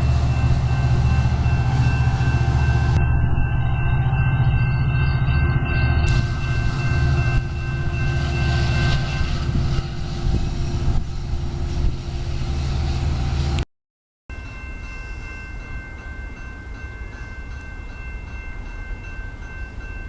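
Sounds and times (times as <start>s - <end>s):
thin high whine: 0.0s - 13.6s
train rumbling past: 0.0s - 13.6s.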